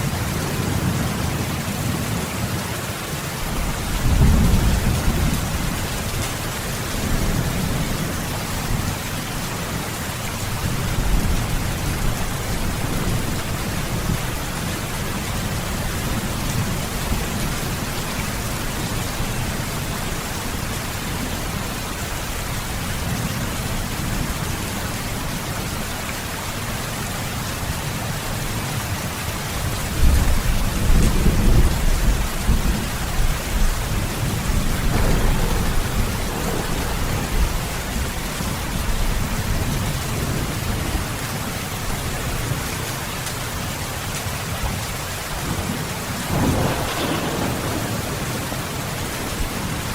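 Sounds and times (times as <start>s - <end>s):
heavy rain: 0.0s - 49.9s
rolling thunder: 3.5s - 9.0s, 30.0s - 41.2s, 45.5s - 49.9s.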